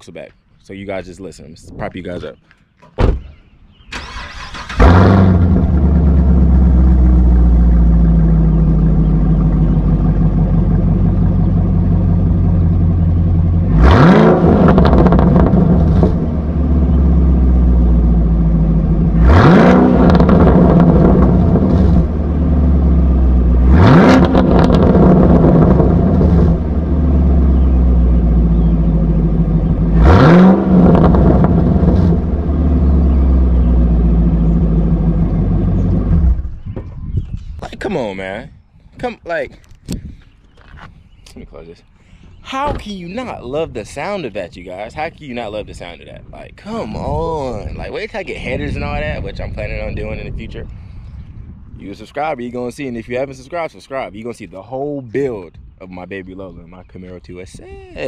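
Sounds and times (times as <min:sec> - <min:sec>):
car engine starting: 0:03.3 - 0:36.7
engine revving: 0:04.0 - 0:36.6.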